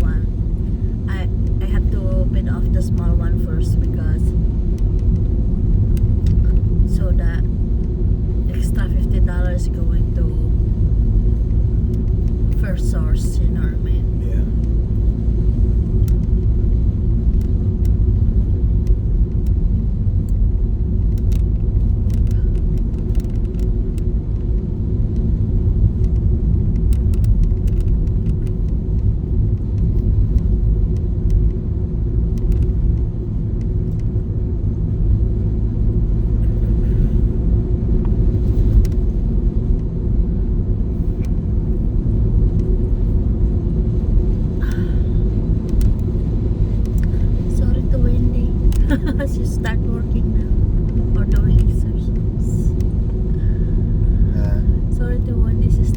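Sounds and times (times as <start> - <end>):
car road and engine rumble: 0.0 - 55.9
faint ticks: 32.4 - 34.1.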